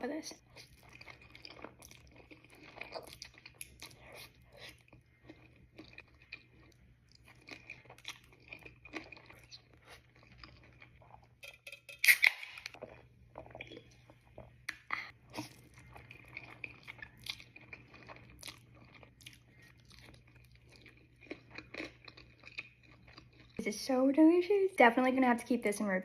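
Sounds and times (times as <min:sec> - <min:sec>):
person chewing: 0:00.4 - 0:11.4, 0:12.0 - 0:23.6.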